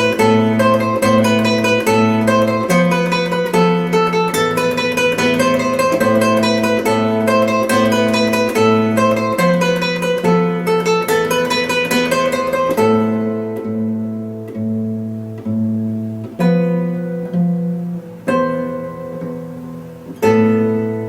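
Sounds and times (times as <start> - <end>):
guitar plucked notes and chords: 0.0 - 21.0.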